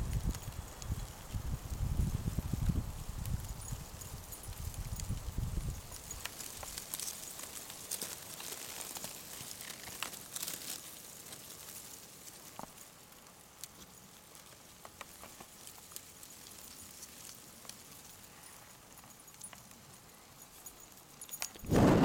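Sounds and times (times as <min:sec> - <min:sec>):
ants rustling with small ticks: 0:00.0 - 0:21.6.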